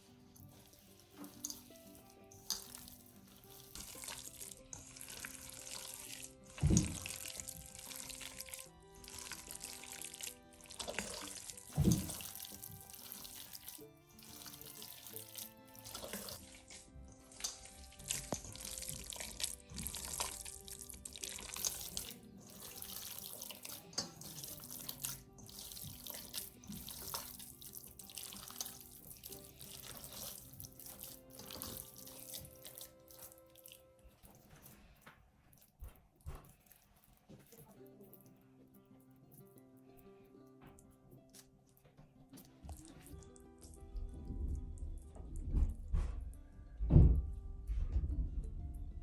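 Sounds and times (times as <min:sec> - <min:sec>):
background music with held notes: 0:00.0 - 0:49.0
tap water splashing into sink: 0:06.6 - 0:07.8, 0:10.8 - 0:13.0.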